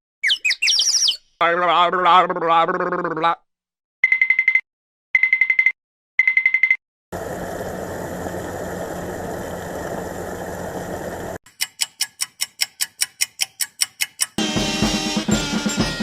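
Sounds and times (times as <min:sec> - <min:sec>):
engine humming: 0:07.2 - 0:11.4
rapid even ticking: 0:07.2 - 0:14.4.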